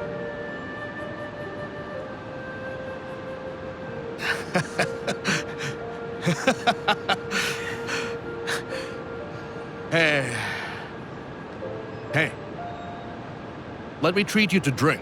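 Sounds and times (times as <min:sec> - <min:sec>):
soft background music: 0:00.0 - 0:15.0
person gasping: 0:04.2 - 0:09.0, 0:10.2 - 0:10.9.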